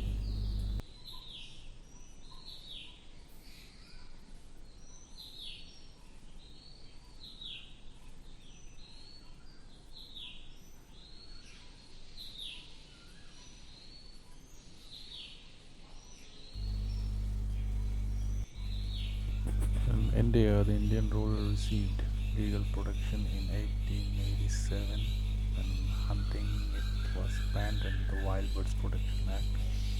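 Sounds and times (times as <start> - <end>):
birds chirping: 0.0 - 0.8, 16.6 - 29.9.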